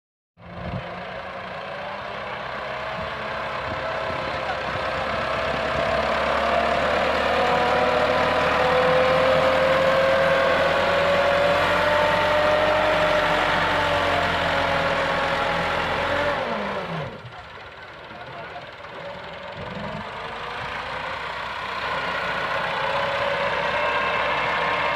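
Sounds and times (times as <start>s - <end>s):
tractor diesel engine running: 0.4s - 24.9s
whine rising and falling in pitch: 22.8s - 24.9s.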